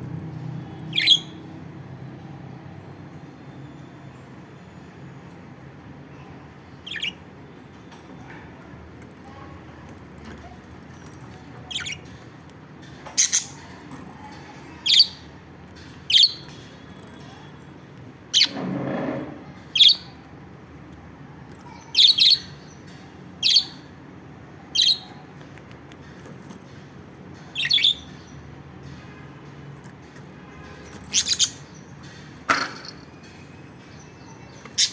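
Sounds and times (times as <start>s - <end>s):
lovebirds chirping: 0.8s - 1.4s, 6.7s - 8.4s, 11.3s - 12.4s, 13.1s - 15.3s, 21.6s - 23.9s, 24.7s - 25.3s, 27.4s - 28.5s, 30.7s - 34.9s.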